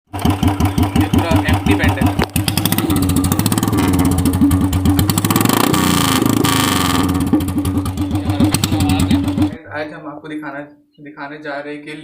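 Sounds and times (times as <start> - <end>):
motorcycle engine revving: 0.1 - 9.7.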